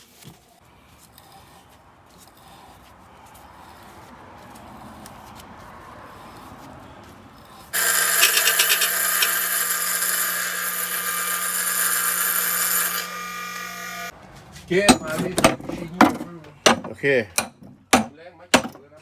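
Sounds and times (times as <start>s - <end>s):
two-stroke engine buzzing whine: 7.8s - 14.1s.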